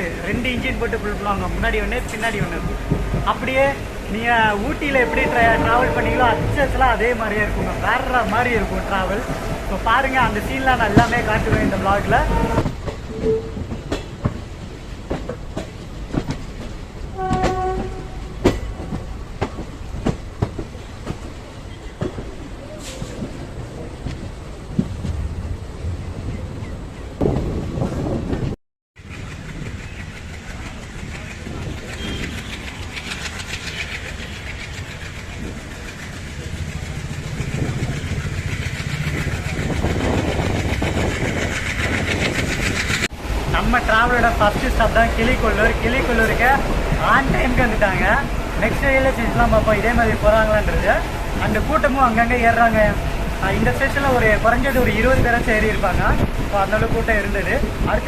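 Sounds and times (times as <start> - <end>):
train wheels clacking: 0.0 - 25.2, 28.3 - 58.0
train rumble: 0.0 - 58.0
train horn: 4.8 - 9.8, 12.1 - 13.6, 17.1 - 18.3.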